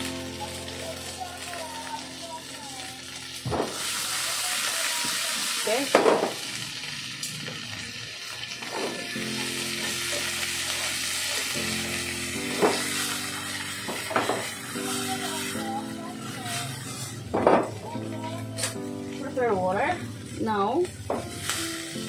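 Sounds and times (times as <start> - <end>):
vegetables sizzling in hot oil: 0.0 - 22.0
pan and chopsticks knocking: 5.9 - 6.4, 12.5 - 12.9, 13.9 - 14.5, 17.3 - 17.8.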